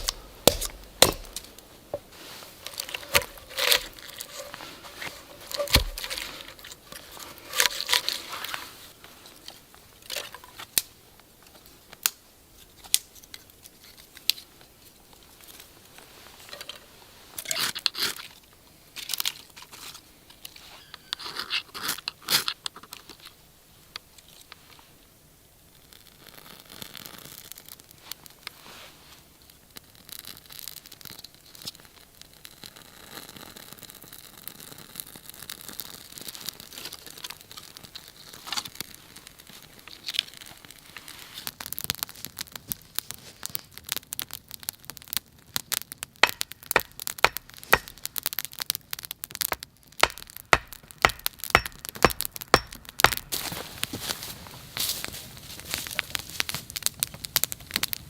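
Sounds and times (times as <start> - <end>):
kindling crackling and snapping: 0.0 - 16.7, 33.9 - 58.0.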